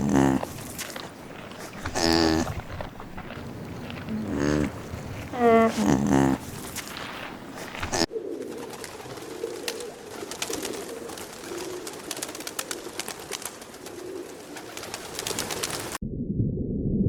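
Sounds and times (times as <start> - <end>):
clicks and scratches: 0.0 - 8.1
birds cooing: 0.0 - 16.0.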